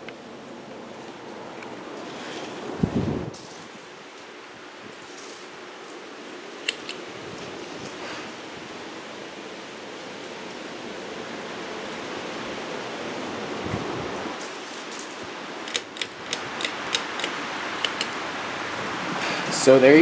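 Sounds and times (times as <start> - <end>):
ceiling fan rushing air: 0.0 - 20.0
sharp clicks: 15.7 - 18.2.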